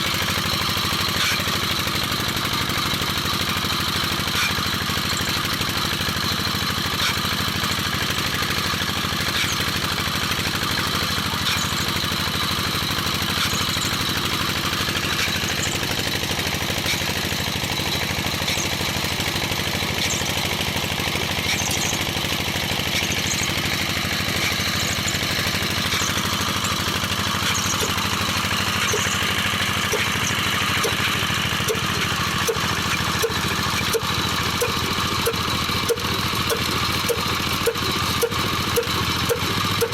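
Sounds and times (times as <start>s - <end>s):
diesel engine running: 0.0s - 39.9s
light regular ticking: 27.4s - 39.9s.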